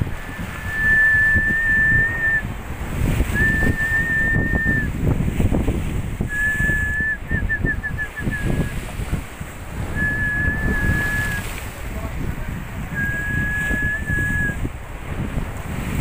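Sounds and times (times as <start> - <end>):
surf: 0.0 - 16.0
wind buffeting microphone: 0.0 - 16.0
person whistling: 0.2 - 2.5, 3.3 - 4.9, 6.3 - 8.8, 9.9 - 11.4, 12.9 - 14.6.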